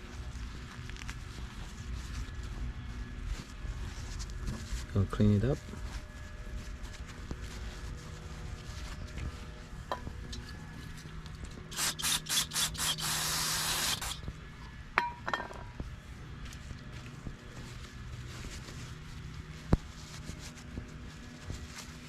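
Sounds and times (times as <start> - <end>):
pressurised spray hissing: 11.7 - 14.2.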